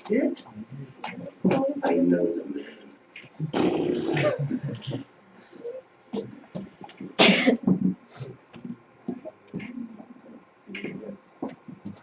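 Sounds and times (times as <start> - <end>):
faint low voices: 0.0 - 12.0
person coughing: 4.0 - 4.9, 7.2 - 7.7.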